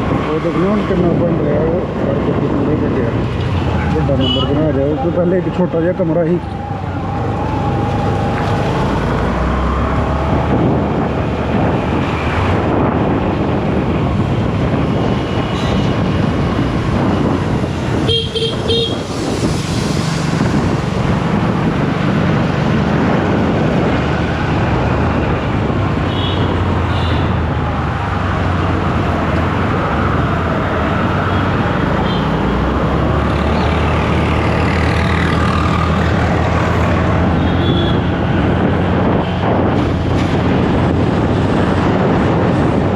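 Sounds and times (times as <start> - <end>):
wind rush: 0.0 - 42.9
vehicle horn: 18.0 - 19.0, 37.4 - 38.0.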